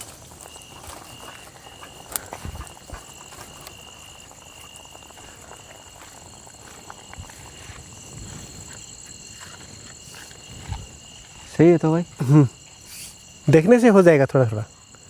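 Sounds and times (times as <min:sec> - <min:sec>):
insects and frogs chorus: 0:00.0 - 0:15.0.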